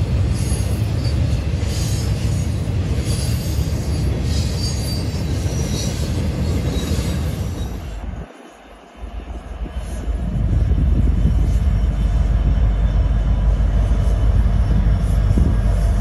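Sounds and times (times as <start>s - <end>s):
train wheels rumbling on rail: 0.0s - 16.0s
wheels squealing: 0.3s - 8.0s.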